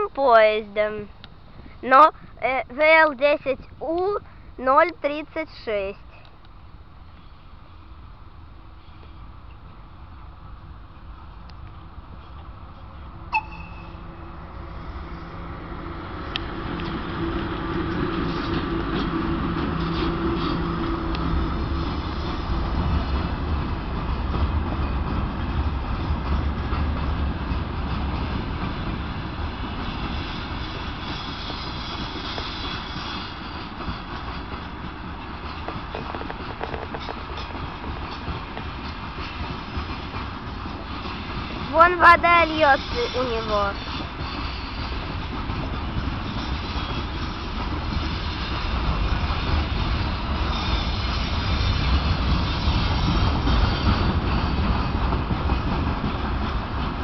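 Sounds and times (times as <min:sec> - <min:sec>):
train wheels rolling on rail: 0:06.1 - 0:57.0
deep low drone: 0:12.0 - 0:25.0.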